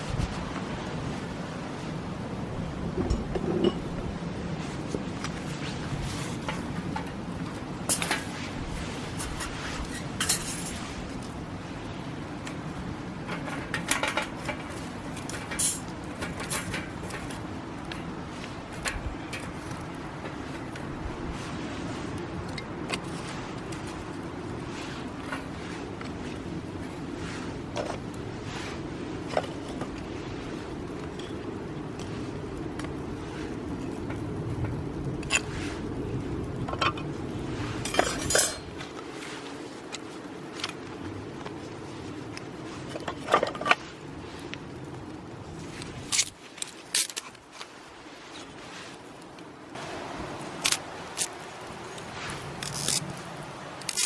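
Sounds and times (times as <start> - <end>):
metal clatter: 37.8 - 38.8
metal cookware clinking: 37.9 - 38.7.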